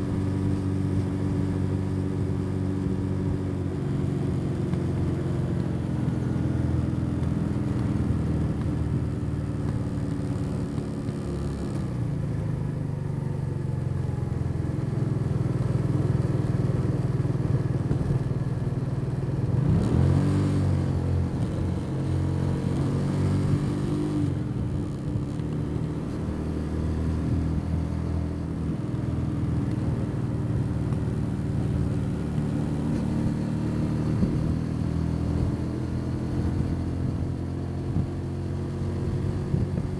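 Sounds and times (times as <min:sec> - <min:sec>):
motorcycle engine revving: 0:19.4 - 0:28.7.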